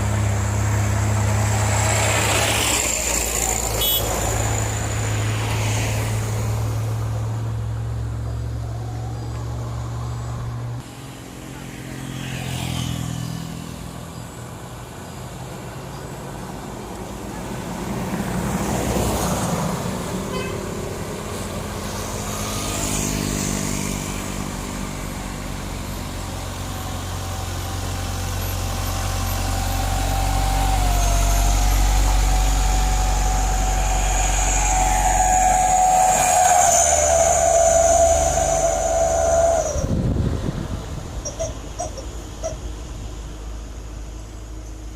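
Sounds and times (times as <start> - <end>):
heavy truck engine labouring: 0.0 - 12.2, 13.8 - 44.9
high-pitched whine: 21.3 - 44.9.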